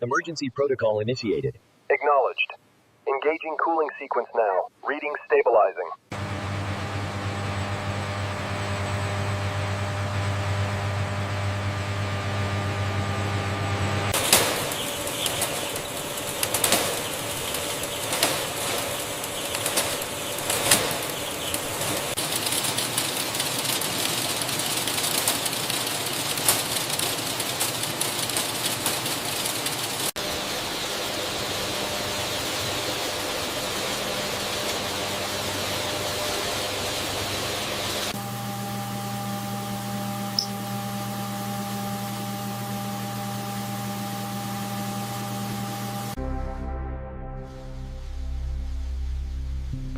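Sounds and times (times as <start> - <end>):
bird wings flapping: 14.2 - 30.1.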